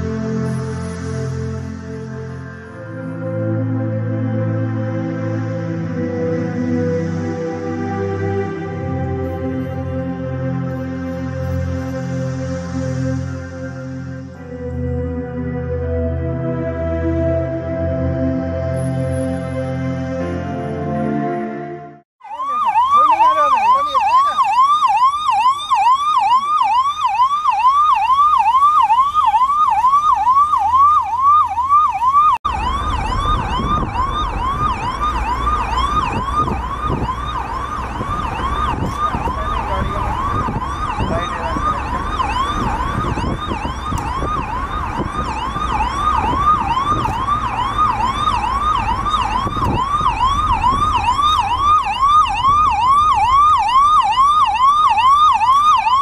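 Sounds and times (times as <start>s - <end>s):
ambulance siren yelping: 0.0s - 56.0s
traffic road rumble: 0.0s - 56.0s.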